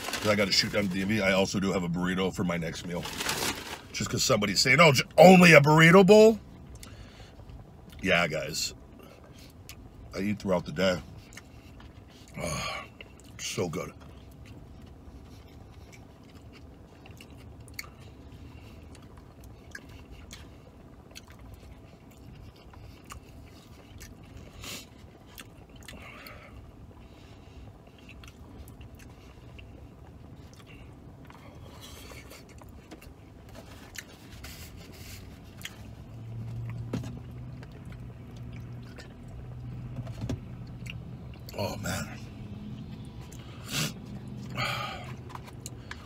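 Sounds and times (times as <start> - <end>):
low steady hum: 0.0 - 46.0
man chewing food: 11.0 - 13.4, 14.0 - 41.6, 42.8 - 46.0.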